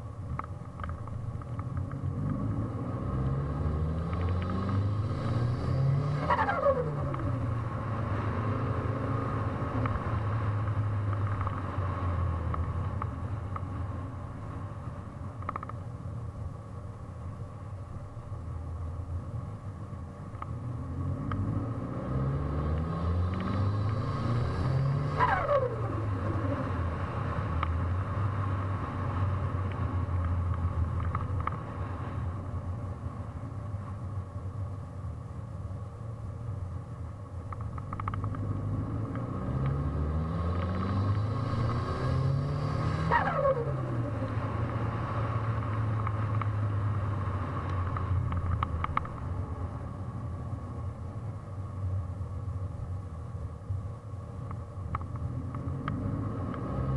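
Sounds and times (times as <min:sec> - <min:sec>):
car engine revving: 0:02.0 - 0:11.5, 0:20.8 - 0:29.6, 0:38.0 - 0:49.0
turbo whistle and flutter: 0:25.1 - 0:26.4, 0:43.0 - 0:44.2.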